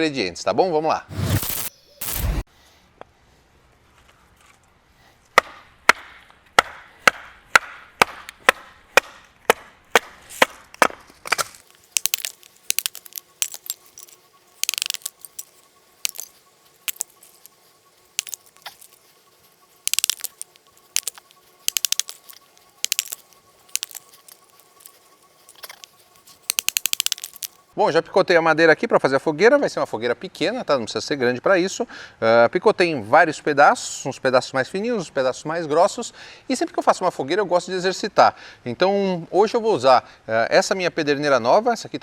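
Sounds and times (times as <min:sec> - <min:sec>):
firewood being chopped: 0:05.4 - 0:15.4
wood cracking and splitting: 0:10.8 - 0:15.5, 0:16.1 - 0:27.7.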